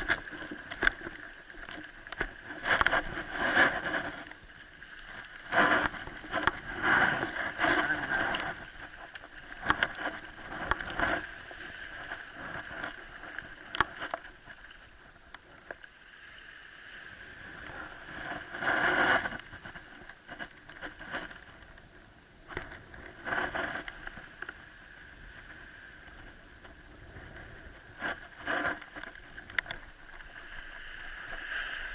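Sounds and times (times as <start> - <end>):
water sloshing and splashing: 0.0 - 16.0, 27.7 - 31.9.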